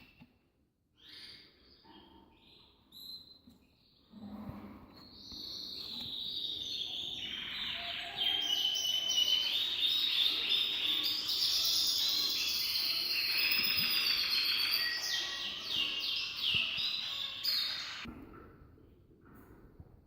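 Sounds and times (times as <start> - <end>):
small birds chirping: 5.0 - 18.1.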